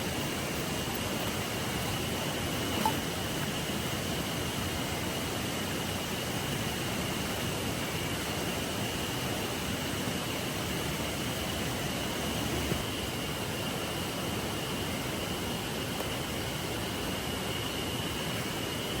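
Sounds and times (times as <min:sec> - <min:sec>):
river water flowing: 0:00.0 - 0:19.0.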